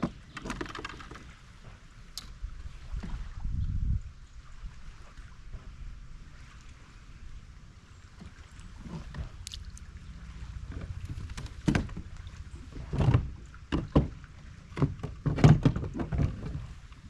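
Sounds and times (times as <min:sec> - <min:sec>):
water: 0:00.0 - 0:17.0
wind: 0:00.0 - 0:17.0
knocks on a kayak: 0:11.1 - 0:12.1, 0:12.9 - 0:16.6.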